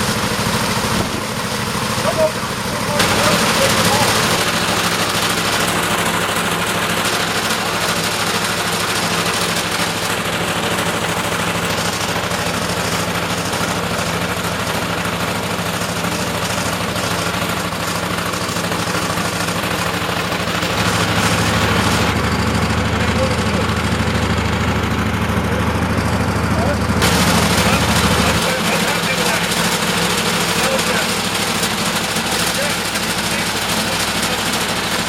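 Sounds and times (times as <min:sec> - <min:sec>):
truck engine idling: 0:00.0 - 0:35.0.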